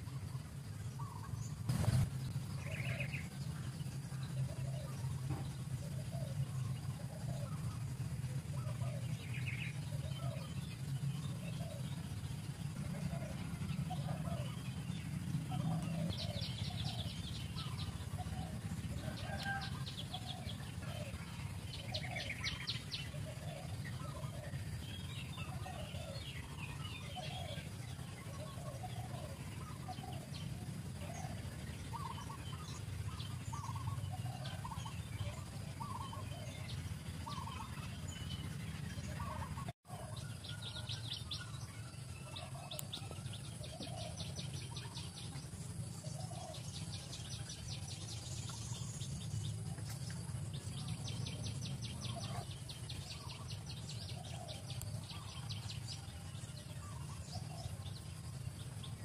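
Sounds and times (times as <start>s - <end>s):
bird calls: 0.0s - 59.0s
steady low rumble: 0.0s - 59.0s.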